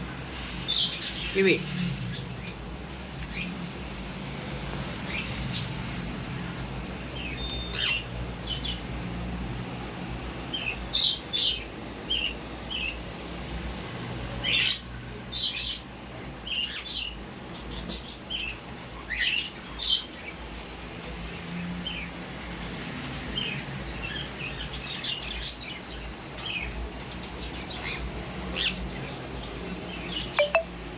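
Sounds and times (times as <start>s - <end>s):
parrot chirping and whistling: 30.4s - 30.6s.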